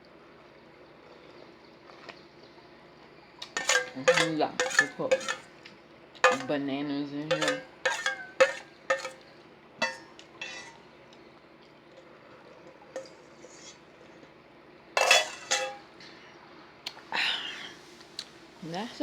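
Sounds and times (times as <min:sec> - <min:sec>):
spoon clinking in cereal dish: 0:03.4 - 0:05.5, 0:06.2 - 0:06.6, 0:07.3 - 0:10.8, 0:15.0 - 0:15.9
clattering: 0:03.5 - 0:05.5, 0:06.3 - 0:06.5, 0:07.3 - 0:09.2, 0:15.0 - 0:15.9.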